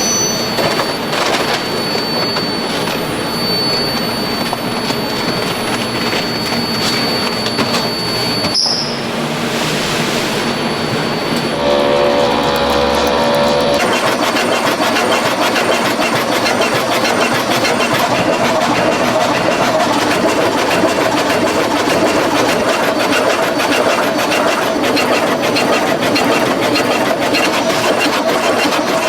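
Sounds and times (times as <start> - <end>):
production line machinery clattering: 0.0 - 29.0
steady hum: 4.8 - 14.3.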